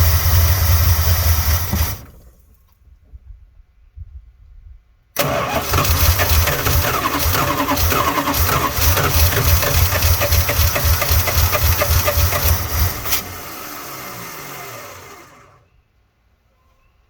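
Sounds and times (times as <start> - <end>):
engine cranking on starter: 0.0 - 2.6, 5.2 - 15.6.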